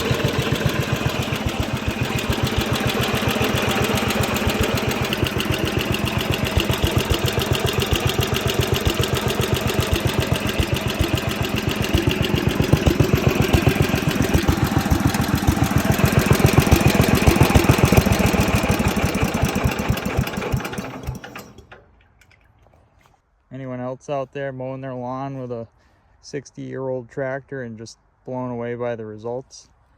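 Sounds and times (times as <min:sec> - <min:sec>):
tractor engine pulsing: 0:00.0 - 0:22.8.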